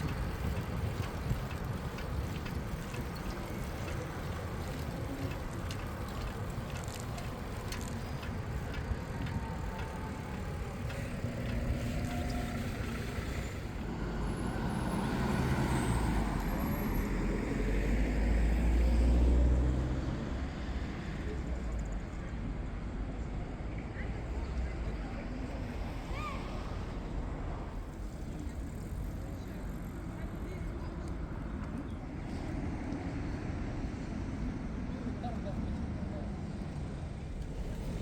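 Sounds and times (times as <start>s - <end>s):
street traffic: 0.0s - 38.0s
motor vehicle passing close: 11.1s - 20.3s.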